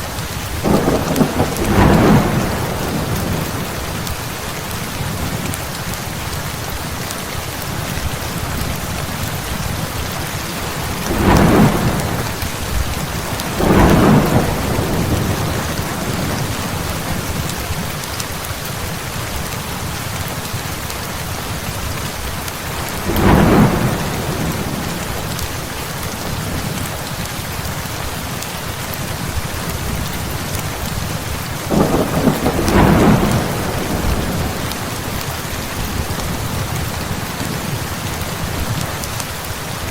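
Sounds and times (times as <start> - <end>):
heavy rain: 0.0 - 39.9
thunder cracking and rumbling: 0.4 - 5.6, 7.9 - 17.9, 22.8 - 26.8, 29.2 - 38.9.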